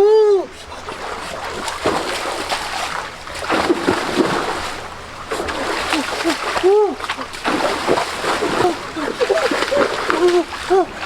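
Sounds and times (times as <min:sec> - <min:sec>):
water splashing and sloshing: 0:00.4 - 0:11.0.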